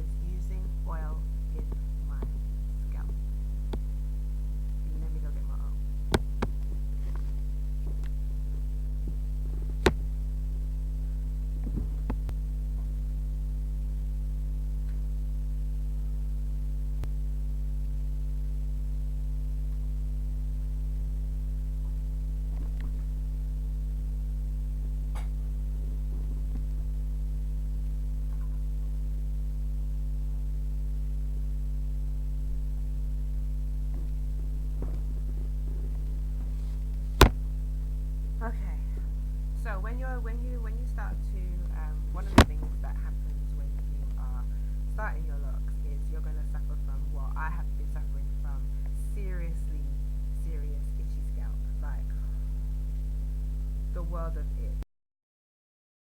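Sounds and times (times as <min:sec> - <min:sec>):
electrical mains hum: 0:00.0 - 0:54.8
faint clicks and knocks: 0:05.9 - 0:13.0.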